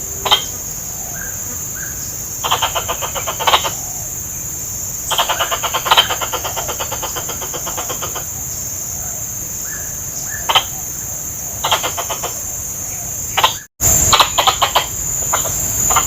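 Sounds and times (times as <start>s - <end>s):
high insect drone: 0.0s - 16.0s
squirrel chattering: 0.2s - 0.6s, 2.4s - 4.0s, 5.1s - 8.5s, 10.2s - 12.6s, 13.3s - 16.0s.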